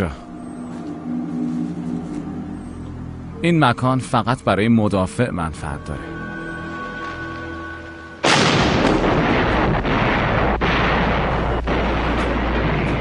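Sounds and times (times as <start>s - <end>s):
loud blast: 8.2s - 13.0s
rumble of shell fire and explosions: 8.2s - 13.0s.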